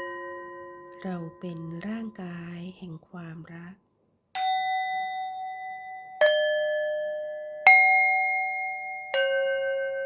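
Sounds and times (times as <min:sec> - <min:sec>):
meditation bell chimes: 0:00.0 - 0:02.1, 0:04.4 - 0:10.0.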